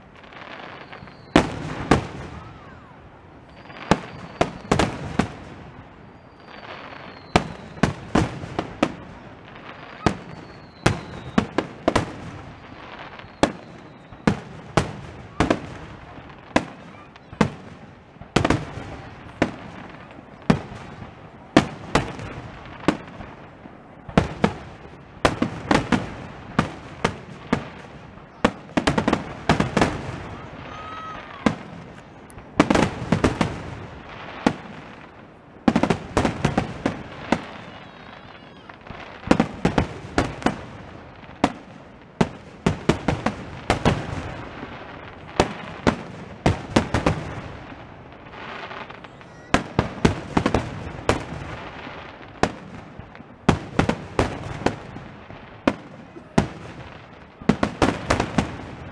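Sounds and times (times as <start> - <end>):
fireworks bursting with bangs: 0.0 - 58.9
fireworks crackling: 0.0 - 58.9
faint falling whistles: 0.6 - 1.6, 3.4 - 4.9, 6.1 - 7.9, 10.0 - 11.5, 13.1 - 14.4.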